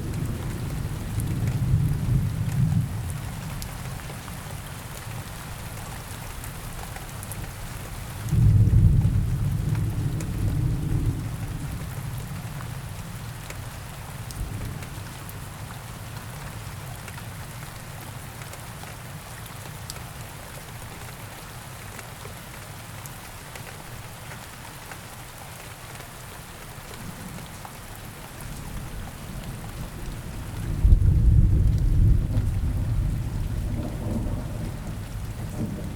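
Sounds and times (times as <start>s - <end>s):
steady rain: 0.0s - 35.9s
rolling thunder: 8.3s - 11.8s, 30.0s - 35.9s
raindrop ticks: 9.7s - 10.4s.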